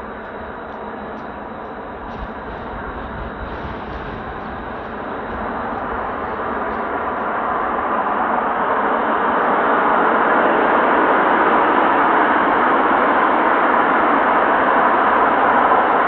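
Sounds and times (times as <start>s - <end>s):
jet aircraft roar: 0.0s - 13.7s.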